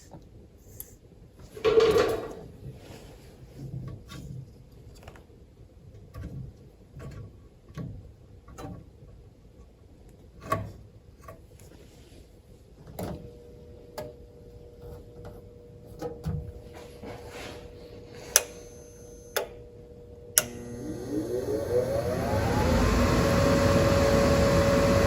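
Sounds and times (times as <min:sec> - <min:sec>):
steady hum: 0:13.1 - 0:25.0.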